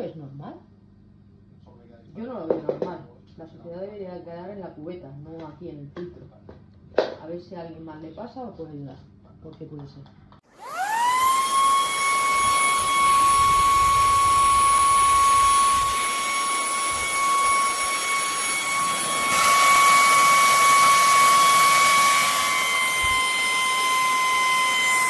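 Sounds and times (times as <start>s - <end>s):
vacuum motor whine: 10.5s - 25.0s.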